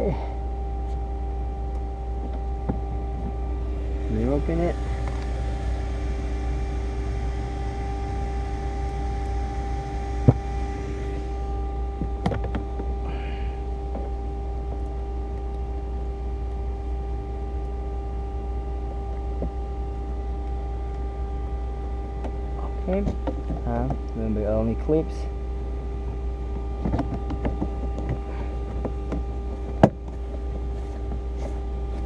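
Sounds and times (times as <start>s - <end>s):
low rumble: 0.0s - 32.0s
mechanical hum: 0.0s - 32.0s.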